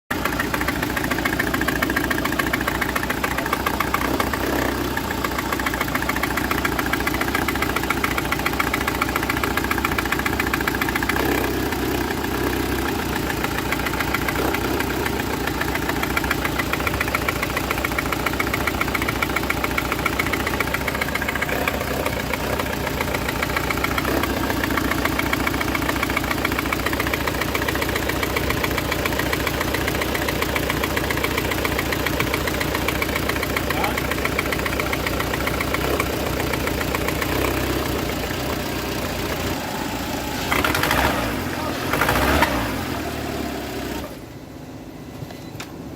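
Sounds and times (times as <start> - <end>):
car engine idling with misfire: 0.0 - 45.9.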